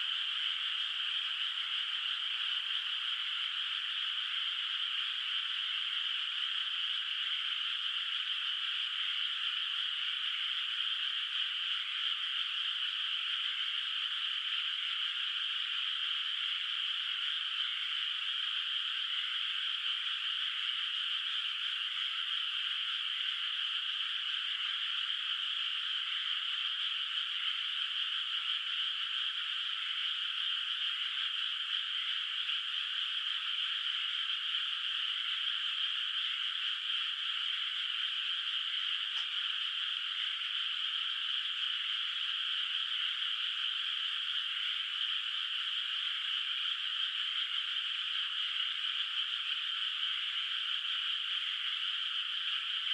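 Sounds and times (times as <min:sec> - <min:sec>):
chorus of frogs calling: 0:00.0 - 0:52.9
faint tick: 0:39.1 - 0:39.4.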